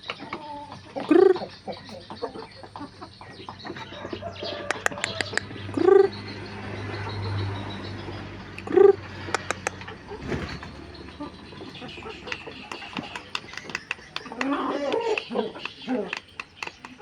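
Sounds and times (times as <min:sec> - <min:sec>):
chicken clucking: 0:00.0 - 0:07.2, 0:08.1 - 0:17.0
chicken squawks: 0:03.8 - 0:06.1
sharp clicks: 0:04.6 - 0:05.6, 0:09.3 - 0:10.0, 0:12.2 - 0:17.0.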